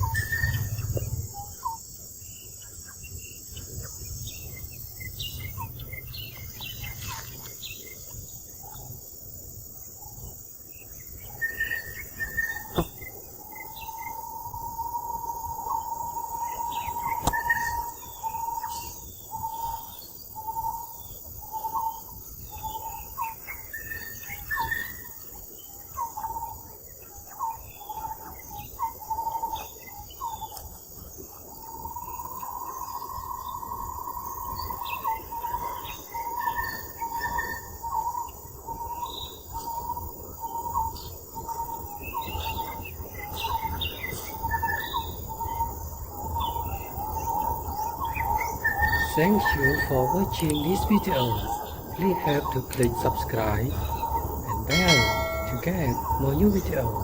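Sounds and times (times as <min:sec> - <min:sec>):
whistled call: 0:00.0 - 0:01.8, 0:48.7 - 0:57.0
insects droning and chirping: 0:00.0 - 0:57.0.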